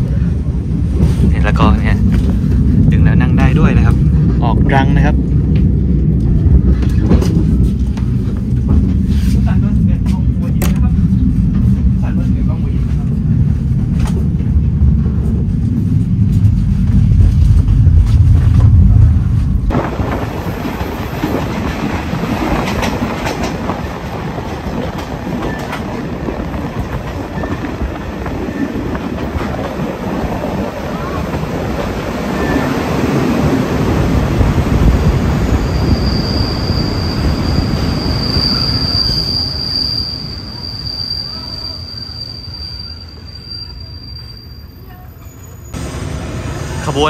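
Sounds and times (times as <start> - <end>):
train wheels rumbling: 0.0 - 47.0
high wheel squeal: 35.3 - 45.8.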